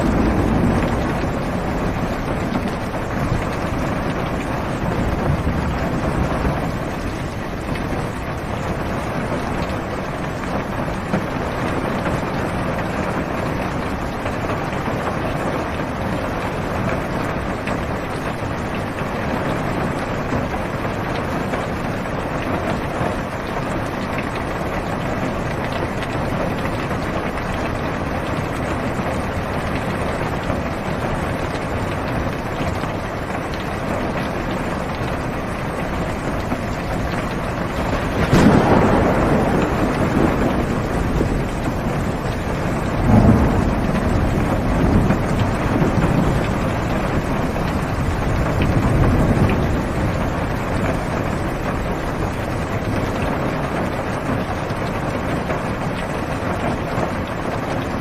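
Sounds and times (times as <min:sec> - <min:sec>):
deep low rumble: 0:00.0 - 0:03.7
rain on car roof: 0:00.0 - 0:58.0.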